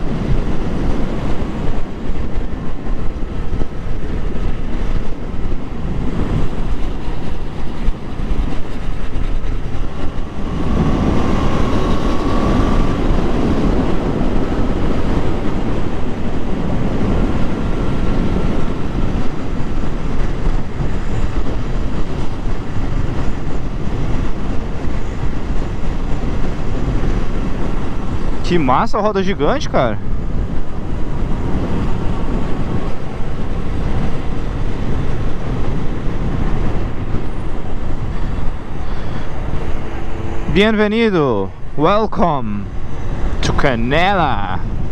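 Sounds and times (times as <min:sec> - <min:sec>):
wind on microphone: 0:00.0 - 0:44.9
motorcycle engine running: 0:09.2 - 0:17.1.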